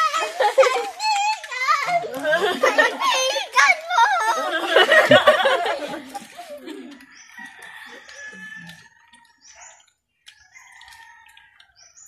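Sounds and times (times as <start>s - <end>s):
birds chirping: 4.6s - 12.0s.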